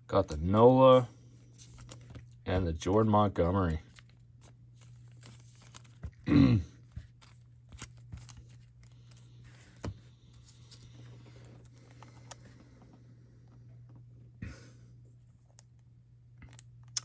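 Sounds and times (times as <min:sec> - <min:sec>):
cards rustling: 0:00.2 - 0:12.7
person grunting: 0:06.2 - 0:06.8.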